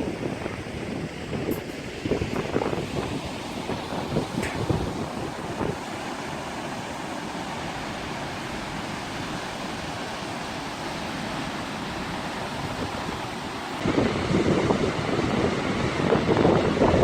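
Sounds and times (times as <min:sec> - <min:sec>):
sea surf: 0:00.0 - 0:17.0.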